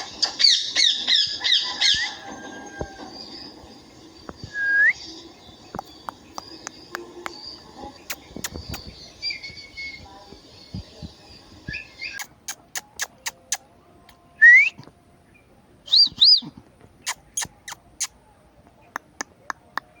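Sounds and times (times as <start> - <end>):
parrot whistling: 4.5 - 5.0.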